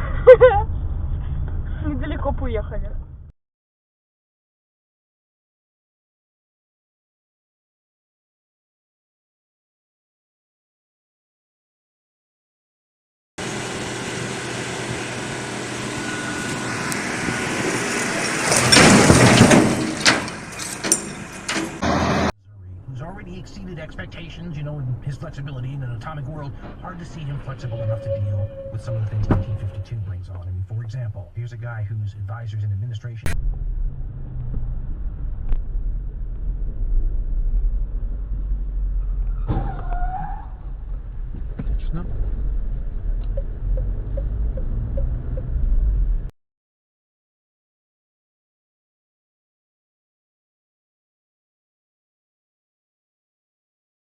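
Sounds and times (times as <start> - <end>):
car driving rumble: 0.0 - 3.3, 13.4 - 46.3
vehicle and road noise: 0.0 - 3.3, 13.4 - 46.3
brief wavering tone: 16.0 - 16.7, 27.6 - 29.9
car collision bang: 17.2 - 22.3.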